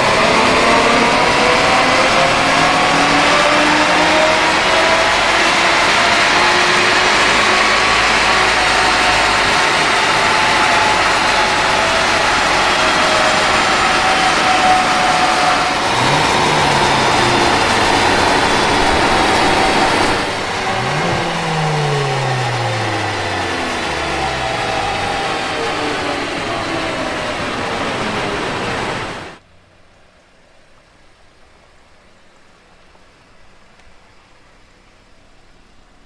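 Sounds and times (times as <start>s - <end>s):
tyres spinning on dyno rollers: 0.0s - 29.4s
car engine on dyno: 0.0s - 29.5s.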